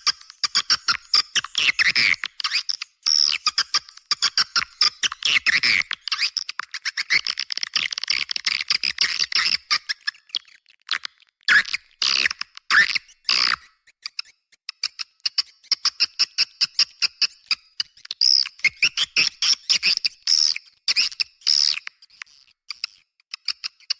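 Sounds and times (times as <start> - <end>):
chattering bird chirps: 0.1 - 10.6, 15.4 - 23.0.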